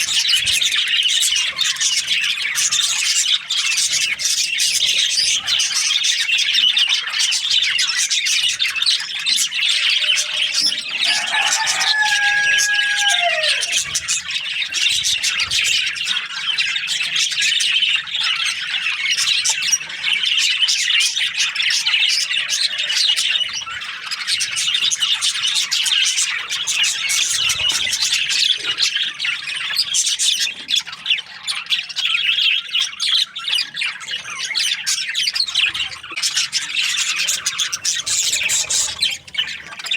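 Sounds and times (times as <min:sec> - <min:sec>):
budgerigars chattering and chirping: 0:00.0 - 0:39.9
lower longer bird call: 0:10.3 - 0:13.8.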